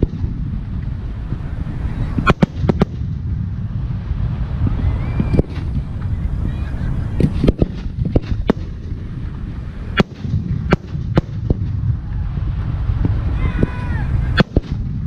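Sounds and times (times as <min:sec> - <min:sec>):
low rumble: 0:00.0 - 0:15.0
firework shells bursting: 0:02.2 - 0:03.2, 0:07.2 - 0:09.0, 0:09.9 - 0:11.8, 0:14.3 - 0:15.0.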